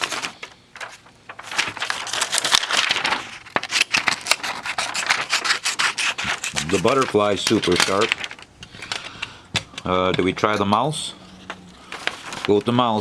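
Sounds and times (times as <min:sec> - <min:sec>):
paper rustling: 0:00.0 - 0:13.0
scissors snipping paper: 0:01.5 - 0:09.9.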